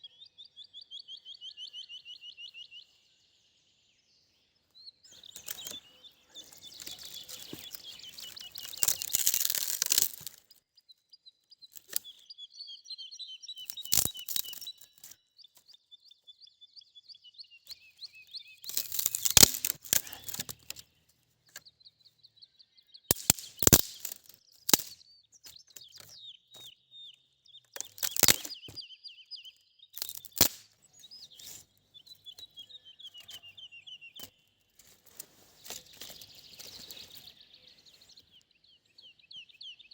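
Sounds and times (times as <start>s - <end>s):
songbird singing trills: 0.0s - 39.9s
sharp close cracks: 5.2s - 5.8s, 6.6s - 10.5s, 11.7s - 12.0s, 13.7s - 15.2s, 18.6s - 20.8s, 23.1s - 25.0s, 27.8s - 28.8s, 30.0s - 30.8s
rustling: 5.2s - 10.5s, 18.6s - 20.8s, 34.8s - 37.3s.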